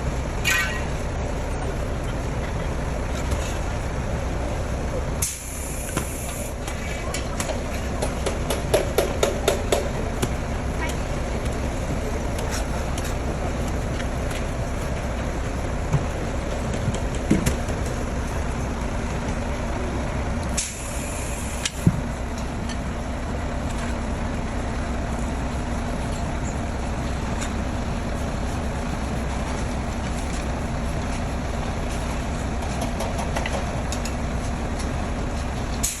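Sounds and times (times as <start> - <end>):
brief hiss: 20.6 - 21.6.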